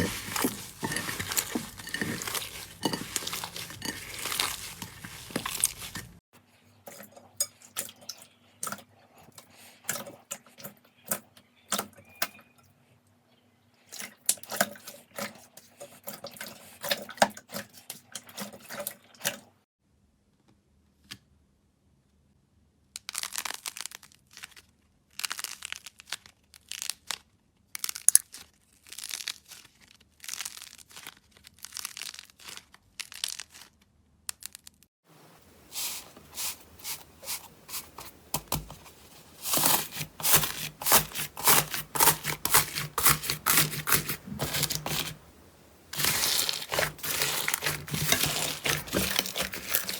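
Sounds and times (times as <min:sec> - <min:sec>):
slime crackling and popping: 0:23.0 - 0:34.9.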